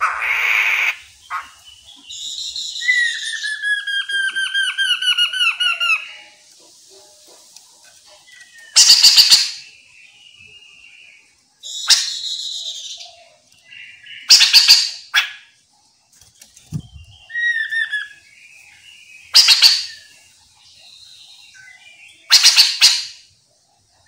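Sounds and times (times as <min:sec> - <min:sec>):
bird whistled phrases: 0:00.0 - 0:06.4, 0:11.6 - 0:13.1, 0:14.0 - 0:15.5, 0:16.7 - 0:18.2, 0:19.3 - 0:20.1, 0:21.6 - 0:23.2
bird harsh rasping calls: 0:00.0 - 0:09.8, 0:11.6 - 0:15.6, 0:19.3 - 0:20.2, 0:21.6 - 0:23.3.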